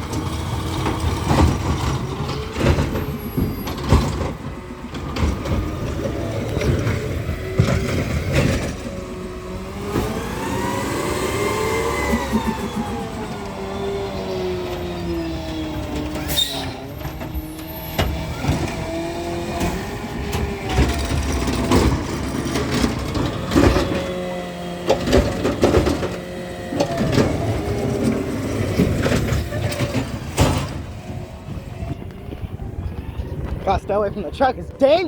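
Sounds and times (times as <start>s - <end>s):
clanks and bangs: 0.0s - 8.9s, 15.9s - 24.2s, 24.9s - 31.4s
garbage truck engine: 0.0s - 35.0s.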